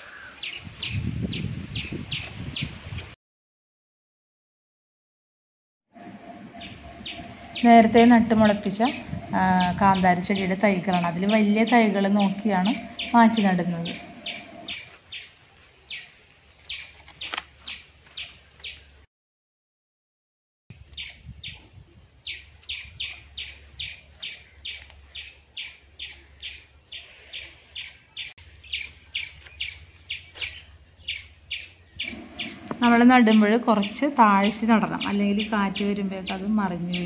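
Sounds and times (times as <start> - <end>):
bird chirping: 6.5 - 19.0, 20.9 - 37.0.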